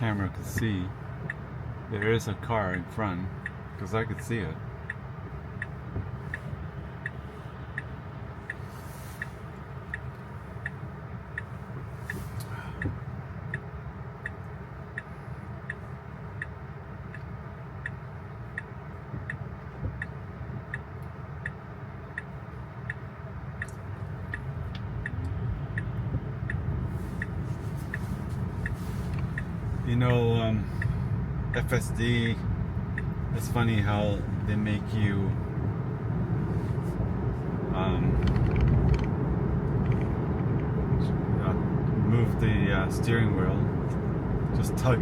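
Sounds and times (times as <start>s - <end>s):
turn signal ticking: 0.0s - 45.0s
tyres rumbling on wet road: 24.1s - 45.0s.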